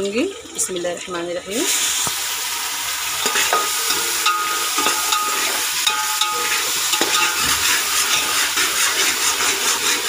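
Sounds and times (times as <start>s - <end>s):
paste sizzling in hot oil: 1.5s - 10.0s
stirring clinks: 3.2s - 9.1s.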